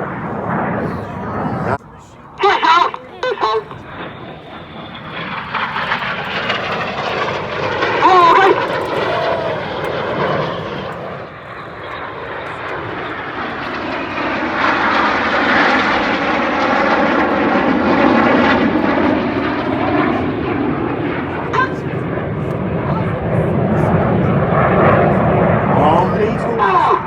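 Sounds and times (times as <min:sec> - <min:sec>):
jets flying past: 0:00.0 - 0:27.0.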